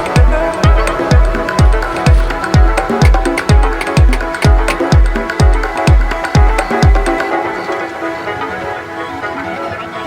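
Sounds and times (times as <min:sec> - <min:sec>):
kick drum beat: 0:00.0 - 0:07.3
sustained synth chords: 0:00.0 - 0:10.0.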